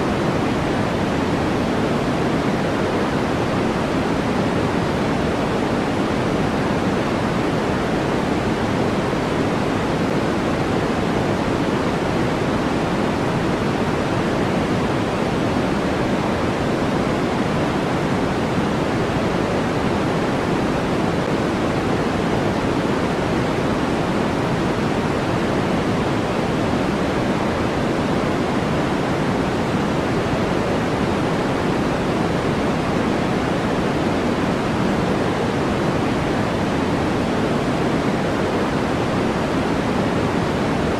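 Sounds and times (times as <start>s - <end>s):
steady white noise hiss: 0.0s - 40.9s.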